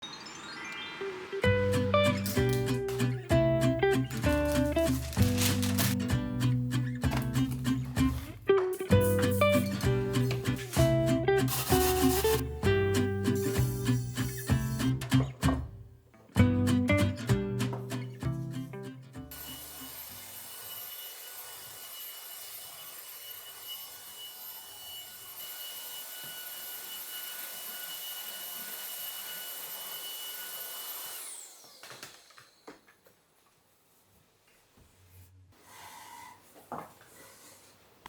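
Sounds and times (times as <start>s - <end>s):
handling clicks and rustles: 3.8s - 6.1s
vacuum cleaner running: 9.5s - 14.2s, 25.4s - 32.8s.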